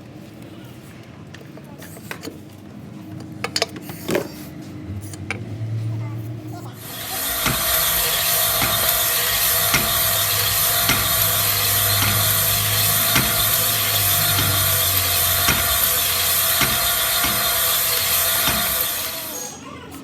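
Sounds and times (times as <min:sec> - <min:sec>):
power tool running: 0:06.8 - 0:20.0.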